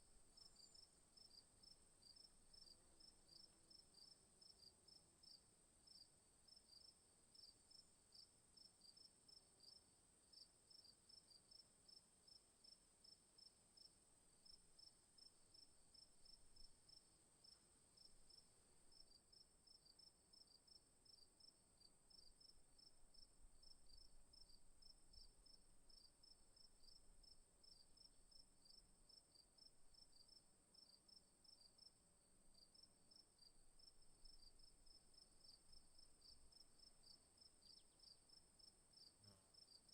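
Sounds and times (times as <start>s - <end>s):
insects chirping: 33.1s - 39.8s.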